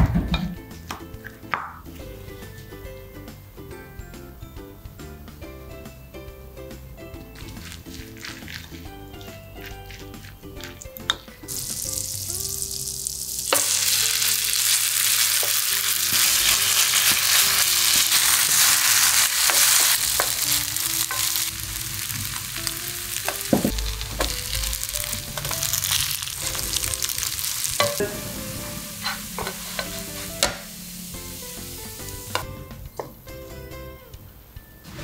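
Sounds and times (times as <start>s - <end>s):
patties sizzling in a pan: 11.4s - 32.4s
utensil tapping a pan: 29.0s - 30.7s.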